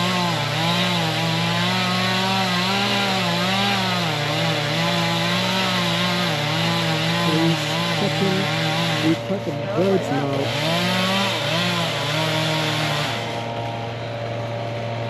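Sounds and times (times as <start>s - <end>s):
chainsaw cutting into tree: 0.0s - 15.0s.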